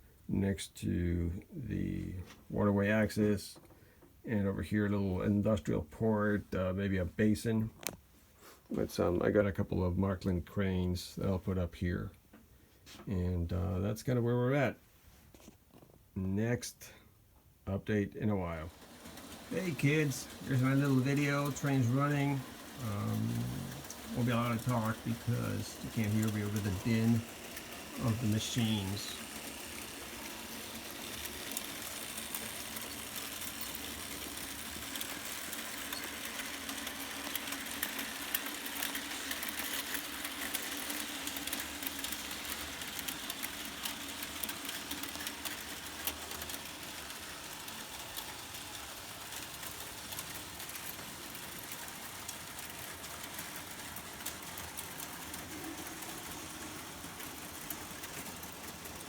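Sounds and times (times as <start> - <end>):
model train electric motors: 18.3 - 59.0
wheels clicking over rails: 18.3 - 59.0.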